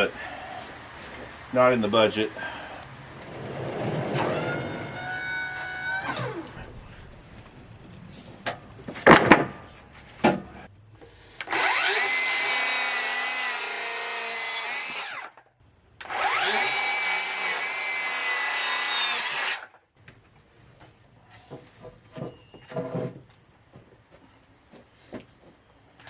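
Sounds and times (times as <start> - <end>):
electric saw cutting boards: 3.1 - 6.7, 11.4 - 15.4, 16.0 - 19.7.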